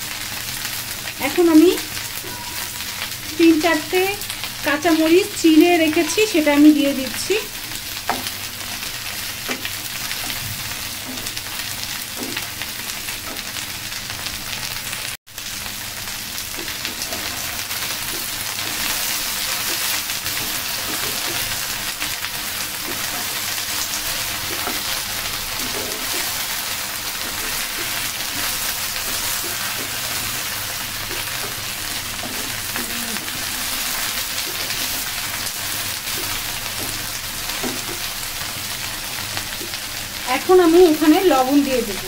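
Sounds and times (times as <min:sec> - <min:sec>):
okra sizzling in oil: 0:00.0 - 0:42.0
wooden spatula turning food: 0:05.3 - 0:14.2, 0:16.0 - 0:40.0.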